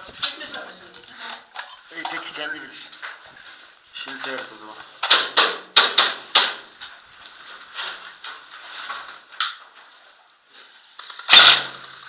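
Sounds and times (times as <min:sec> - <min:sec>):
airsoft pistol shots: 0:05.0 - 0:06.6, 0:11.3 - 0:11.8.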